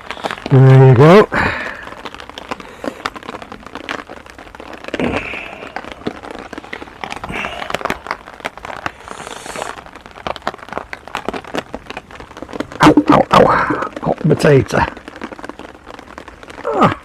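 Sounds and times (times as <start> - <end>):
rain ticking on a tarp: 0.0 - 17.0.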